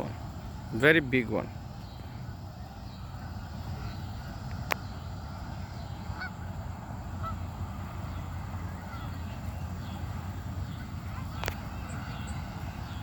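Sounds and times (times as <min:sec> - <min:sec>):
low steady rumble: 0:00.0 - 0:13.0
waterfowl honking: 0:02.2 - 0:04.5, 0:05.2 - 0:13.0.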